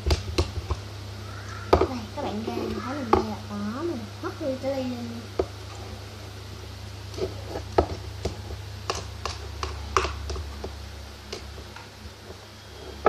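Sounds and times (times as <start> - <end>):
low hum: 0.0 - 13.0
spoon stirring sticky slime: 7.1 - 11.8.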